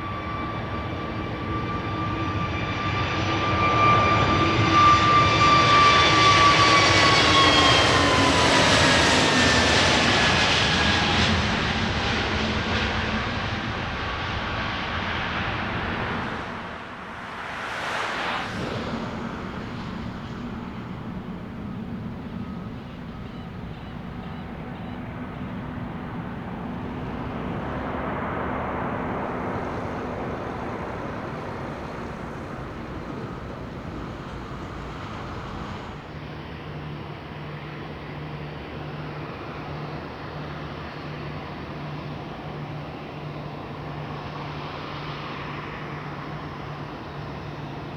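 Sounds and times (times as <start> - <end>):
jet aircraft noise: 0.0 - 47.9
traffic rumble: 13.3 - 36.5
low hum: 15.2 - 36.1.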